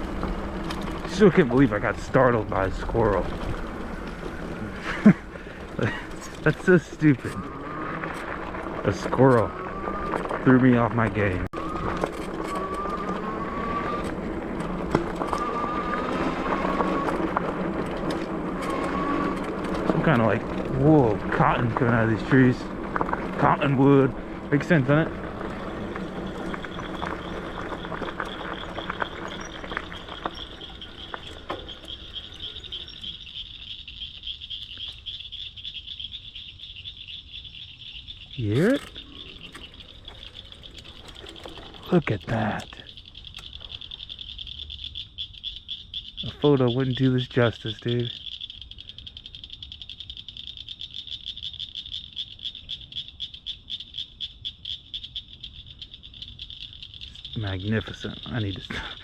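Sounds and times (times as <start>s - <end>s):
animals calling in pulsing trill: 0.0s - 59.0s
frogs or insects chorus: 0.0s - 59.0s
scattered clicks: 38.0s - 50.0s.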